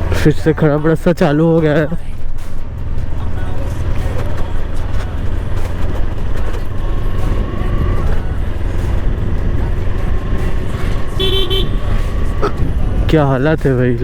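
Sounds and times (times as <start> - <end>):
motorcycle engine running: 0.0 - 14.0
wind rumble on microphone: 5.8 - 14.0.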